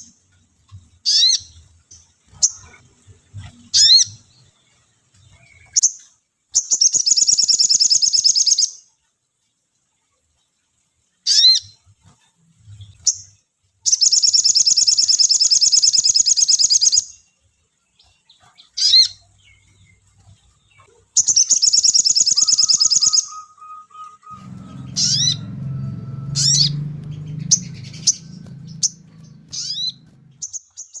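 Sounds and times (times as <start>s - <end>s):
bird whistled chirps and trills: 1.0s - 2.8s, 3.5s - 4.5s, 5.2s - 8.8s, 11.2s - 11.8s, 12.7s - 17.3s, 18.0s - 20.0s, 20.6s - 31.0s
low rumble: 24.3s - 30.5s.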